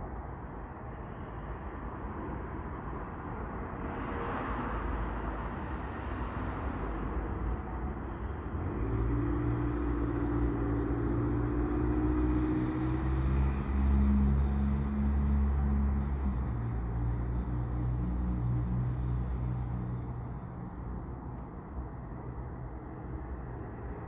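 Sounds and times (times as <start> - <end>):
freight cars rumbling past: 3.6 - 21.1.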